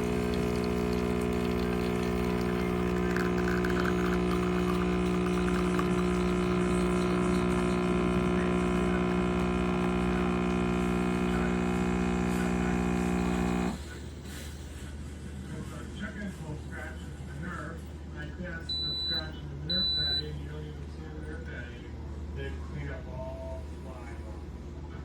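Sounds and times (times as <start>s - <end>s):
espresso machine pump humming: 0.0s - 13.8s.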